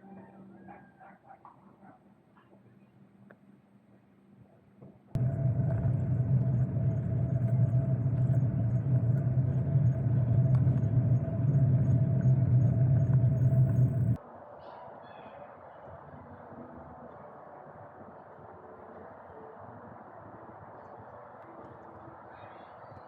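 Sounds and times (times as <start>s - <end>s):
constant hum: 0.0s - 23.0s
steady low rumble: 5.2s - 14.2s.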